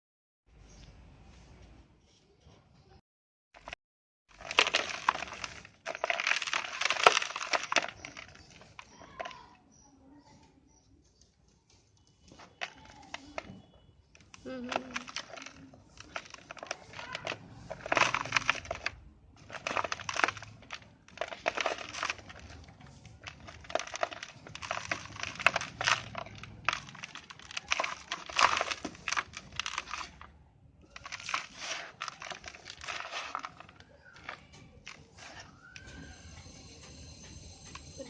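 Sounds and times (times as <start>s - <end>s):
dry dirt crunching and crumbling: 3.6s - 9.8s, 12.2s - 36.1s.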